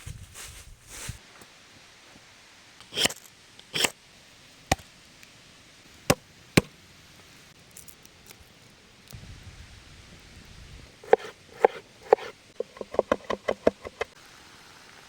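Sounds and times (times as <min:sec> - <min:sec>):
short rasping sounds: 0:11.0 - 0:14.2.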